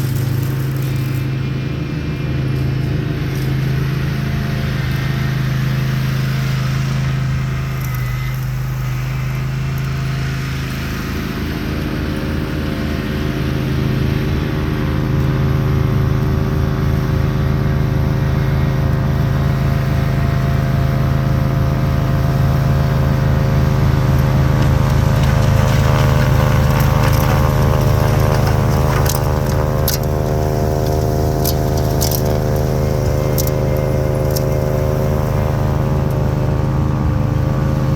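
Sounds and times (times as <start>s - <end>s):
lawn tractor engine running: 0.0s - 37.9s.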